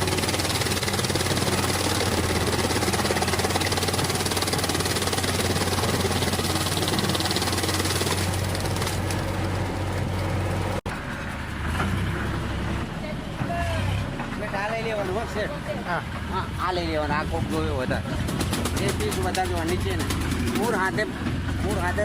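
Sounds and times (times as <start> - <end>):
shredder mechanical clatter: 0.0 - 10.2, 17.5 - 22.0
tractor diesel engine hum: 0.0 - 22.0.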